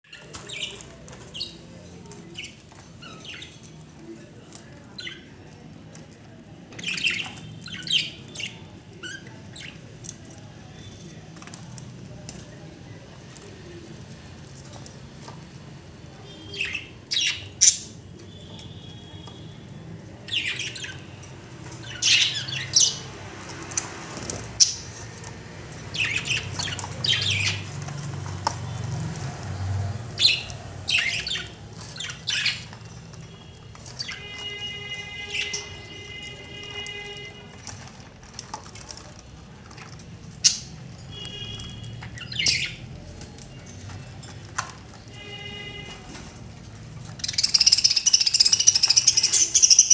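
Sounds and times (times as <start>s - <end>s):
budgerigars squawking and chirping: 30.1s - 32.8s, 47.2s - 49.9s.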